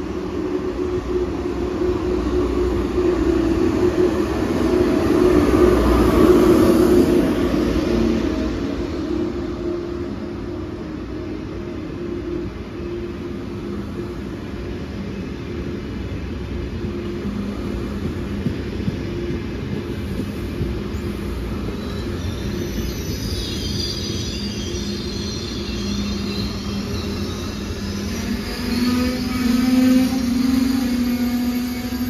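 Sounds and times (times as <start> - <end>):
train wheels rumbling on rail: 0.0 - 32.0
metallic wheel squeal: 21.6 - 32.0.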